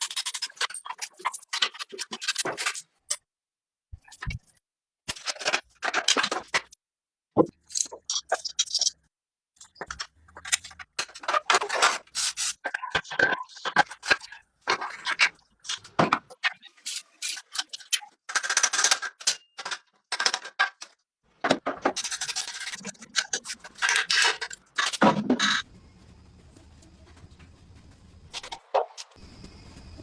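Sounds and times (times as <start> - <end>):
hand tools scraping metal parts: 21.9 - 25.6.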